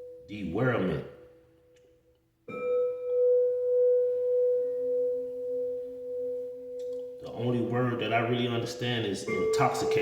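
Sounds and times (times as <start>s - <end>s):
lower ringing tone: 0.0s - 0.3s, 2.5s - 7.8s, 9.2s - 10.0s
struck instrument ringing: 2.5s - 10.0s.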